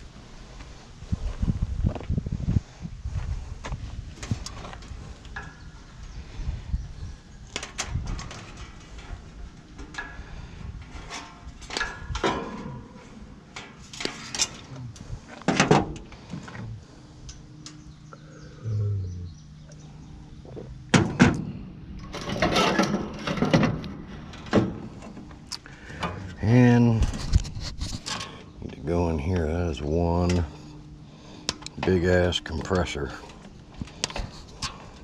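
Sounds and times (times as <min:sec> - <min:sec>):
metal clanks and knocks: 0:07.5 - 0:14.7, 0:15.4 - 0:16.6, 0:20.9 - 0:25.3.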